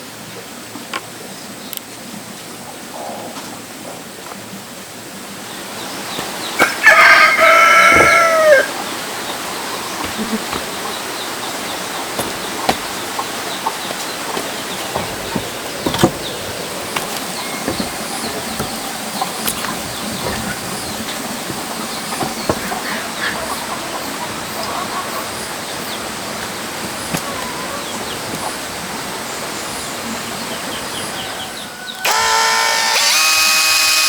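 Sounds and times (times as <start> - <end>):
rooster crowing: 6.6 - 8.8.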